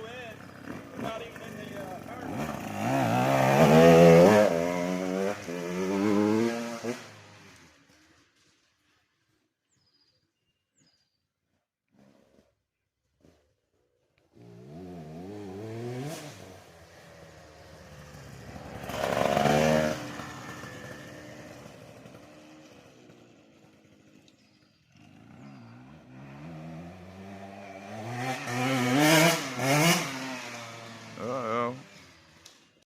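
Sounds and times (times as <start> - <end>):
dirt bike engine revving: 0.0 - 8.4, 14.3 - 32.8.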